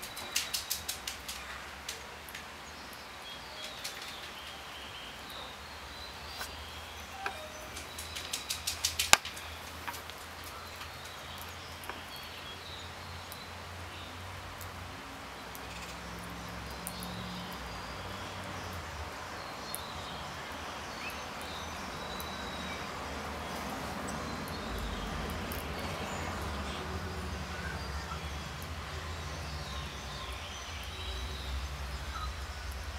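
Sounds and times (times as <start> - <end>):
sharp clicks: 0.0 - 2.5, 7.2 - 10.4.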